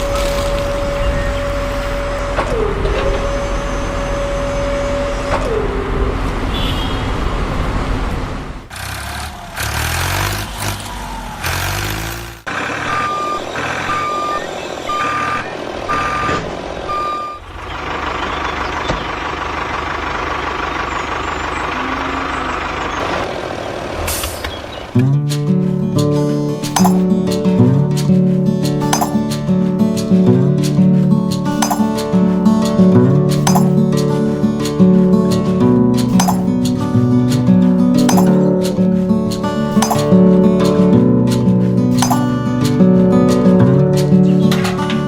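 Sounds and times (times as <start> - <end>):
truck engine running: 7.7 - 24.0
reversing beeps: 12.8 - 17.4
music: 25.0 - 45.0.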